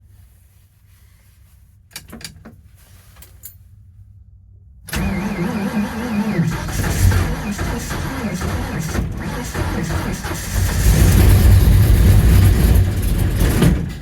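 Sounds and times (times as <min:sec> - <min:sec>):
engine starting and running unevenly: 0:04.9 - 0:14.0.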